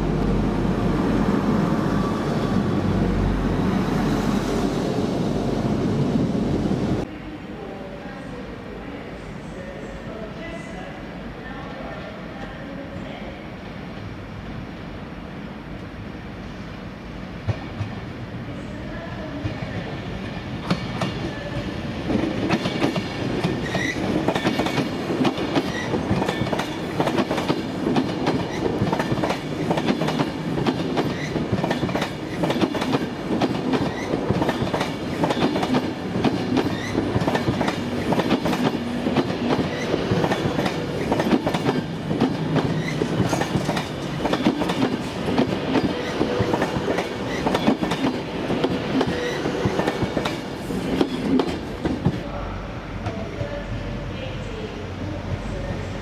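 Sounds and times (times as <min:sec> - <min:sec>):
train wheels clattering over rails: 0:22.1 - 0:52.2.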